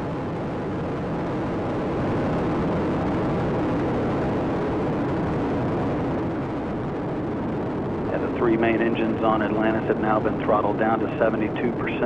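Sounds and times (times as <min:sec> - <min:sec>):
rocket engines rumbling: 0:00.0 - 0:12.0.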